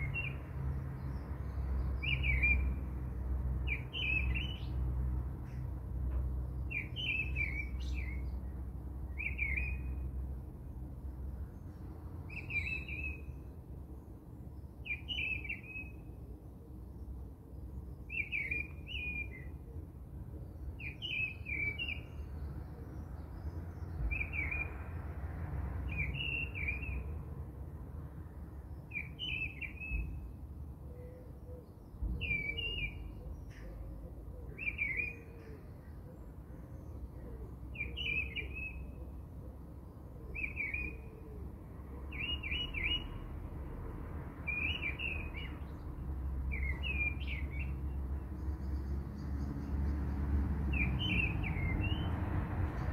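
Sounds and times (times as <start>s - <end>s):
bird chirping: 0.0s - 2.9s, 3.6s - 4.8s, 6.5s - 10.1s, 11.6s - 13.5s, 14.6s - 16.2s, 17.0s - 19.6s, 20.4s - 24.8s, 25.8s - 27.1s, 28.7s - 39.2s, 39.8s - 41.2s, 42.1s - 43.3s, 44.4s - 50.0s, 50.7s - 52.9s.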